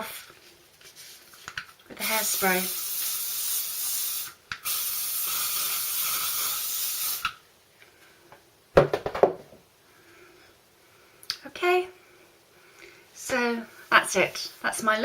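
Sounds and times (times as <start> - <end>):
aerosol can spraying: 2.0 - 7.4.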